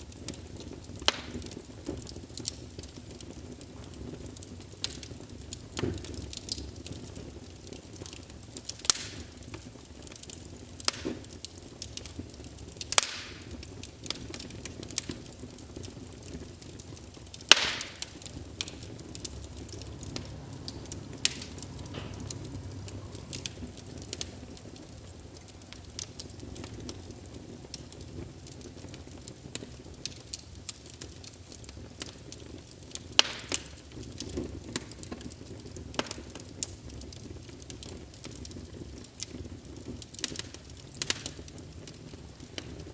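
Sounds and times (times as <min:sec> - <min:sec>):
fire burning: 0:00.0 - 0:42.9
fire crackling and popping: 0:00.0 - 0:42.9
loud sharp snaps: 0:08.9 - 0:09.2.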